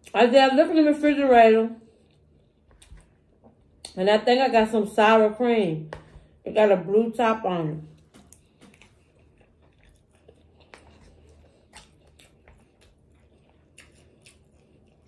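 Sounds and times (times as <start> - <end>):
chewing food: 1.8 - 4.0, 7.9 - 15.0.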